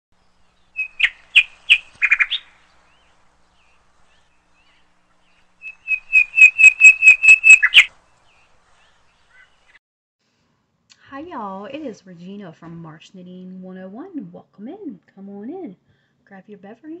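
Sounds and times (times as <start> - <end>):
songbird singing: 0.2 - 9.8.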